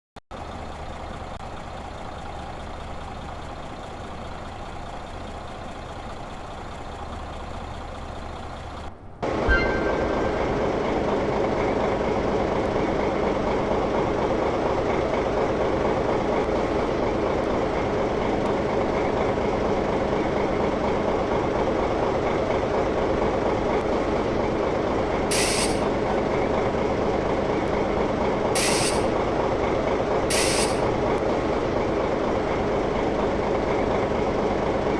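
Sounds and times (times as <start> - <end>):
short hisses of air: 25.3 - 25.8, 28.6 - 29.1, 30.3 - 30.8.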